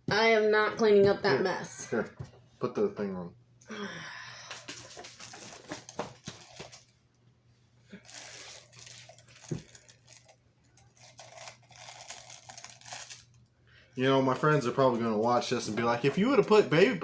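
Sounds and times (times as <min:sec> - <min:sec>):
plastic crinkling and rustling: 0:04.6 - 0:07.0, 0:08.0 - 0:16.8.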